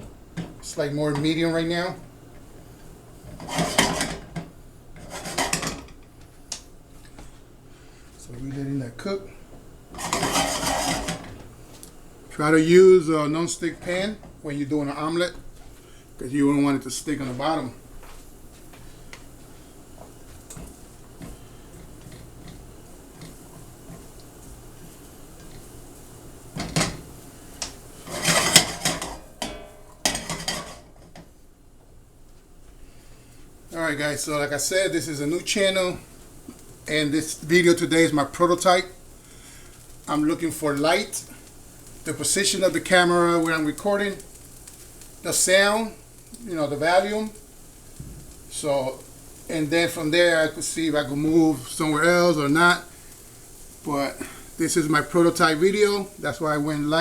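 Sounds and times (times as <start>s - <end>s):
utensil scraping in frying pan: 2.6s - 6.0s, 9.9s - 11.7s, 17.0s - 31.3s, 35.1s - 57.0s
kitchen utensils clattering and scraping: 3.3s - 6.0s, 9.9s - 11.4s, 28.0s - 31.2s.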